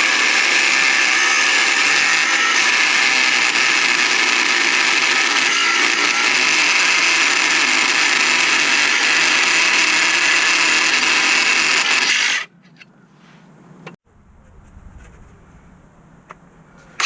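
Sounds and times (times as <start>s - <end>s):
power tool running: 0.0s - 12.5s.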